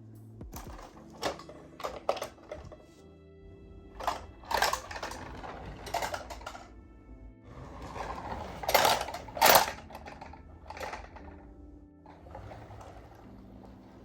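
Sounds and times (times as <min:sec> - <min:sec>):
quiet background music: 0:00.0 - 0:14.0
plastic toy cars clicking and rattling: 0:00.6 - 0:02.8, 0:04.0 - 0:06.7, 0:07.6 - 0:11.5, 0:12.1 - 0:14.0.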